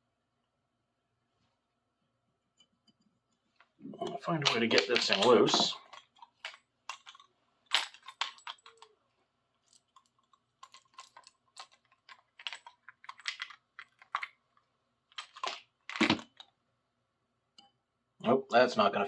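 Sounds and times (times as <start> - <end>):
hand tools clicking and tapping: 4.4 - 8.9.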